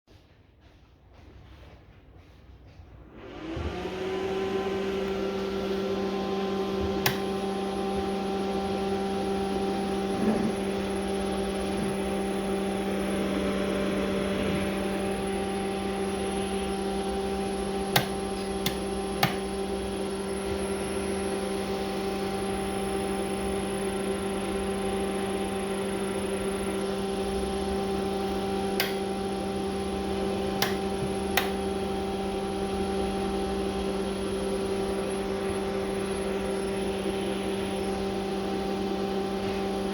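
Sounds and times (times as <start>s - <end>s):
electric motor humming: 3.2s - 39.9s
sharp clicks: 7.0s - 7.3s, 28.8s - 29.0s.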